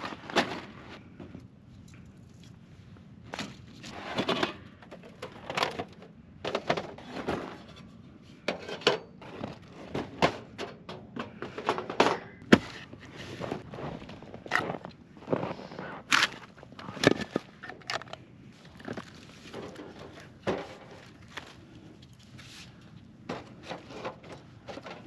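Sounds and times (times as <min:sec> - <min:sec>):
metal clunks and scrapes: 0:03.3 - 0:18.2, 0:18.8 - 0:21.4, 0:23.2 - 0:25.0.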